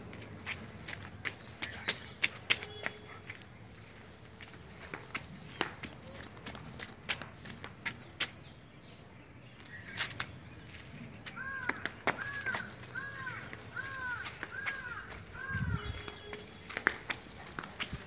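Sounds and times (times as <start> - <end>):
bird calling: 11.3 - 16.8.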